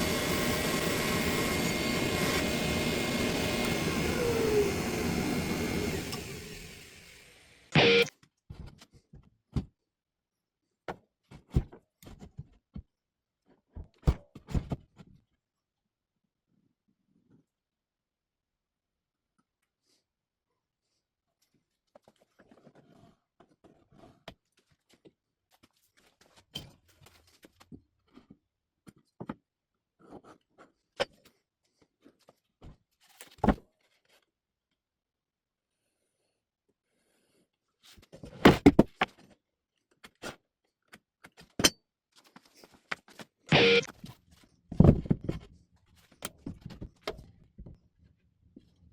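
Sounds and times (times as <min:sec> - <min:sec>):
objects knocking and thudding: 0:38.2 - 0:39.3, 0:44.7 - 0:45.5.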